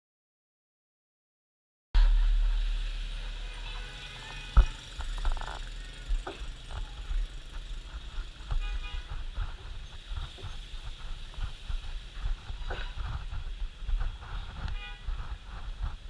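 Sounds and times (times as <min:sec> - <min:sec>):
vehicle horn toot: 0:02.0 - 0:06.4, 0:08.5 - 0:09.4, 0:14.6 - 0:15.3
rumble of passing vehicles: 0:02.0 - 0:16.0.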